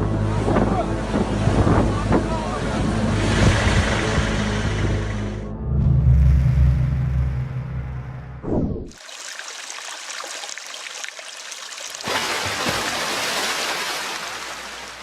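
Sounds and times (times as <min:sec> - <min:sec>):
storm water rushing: 0:03.0 - 0:05.1, 0:08.9 - 0:15.0
water pattering: 0:08.9 - 0:15.0.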